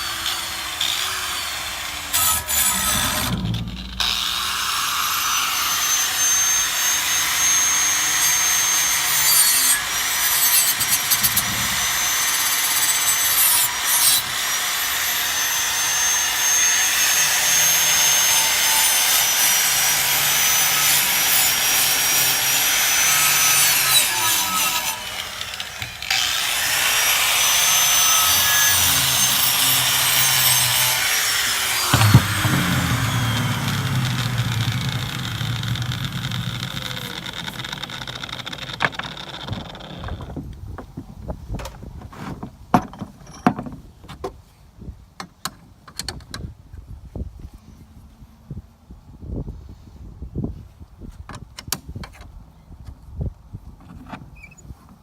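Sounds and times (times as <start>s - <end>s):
rotary tool whine: 0.0s - 40.3s
scraping rust off metal: 2.1s - 5.6s, 19.9s - 40.2s.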